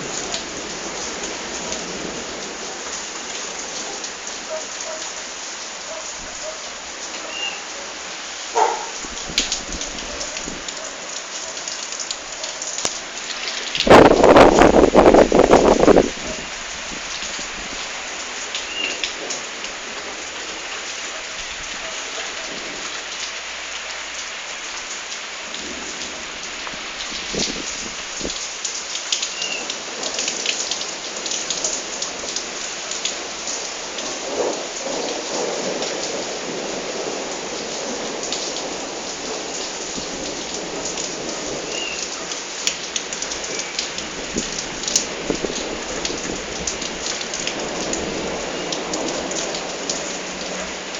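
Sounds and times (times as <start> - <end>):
close drips and splashes: 0.0 - 50.9
heavy rain splattering: 0.0 - 50.9
thunder rumbling: 12.0 - 17.8.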